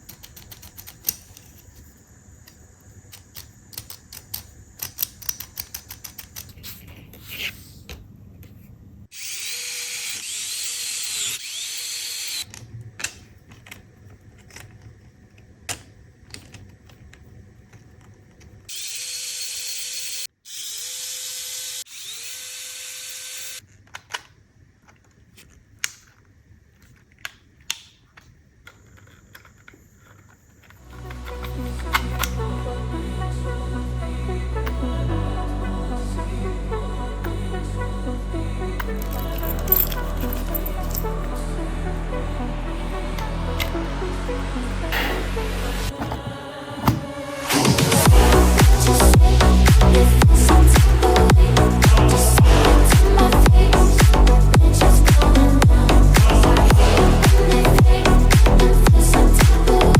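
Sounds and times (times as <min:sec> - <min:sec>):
electric drill running: 0:09.1 - 0:12.5, 0:18.7 - 0:23.6.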